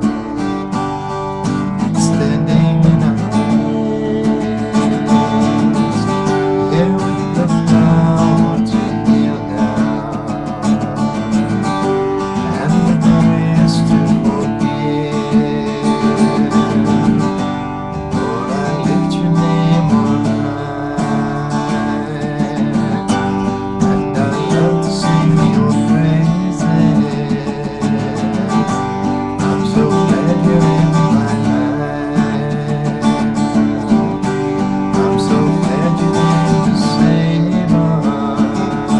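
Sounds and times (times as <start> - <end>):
acoustic guitar strummed and picked: 0.0 - 38.9.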